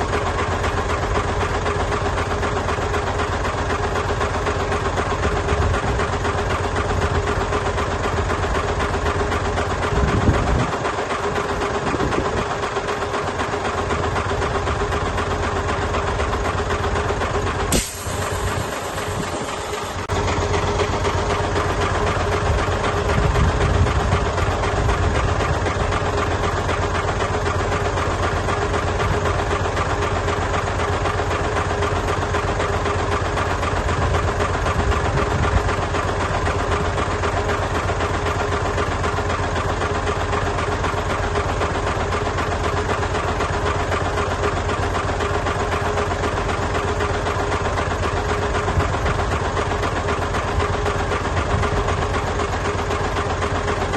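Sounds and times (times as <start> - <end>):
diesel engine droning: 0.0 - 53.9
hiss: 17.7 - 20.0.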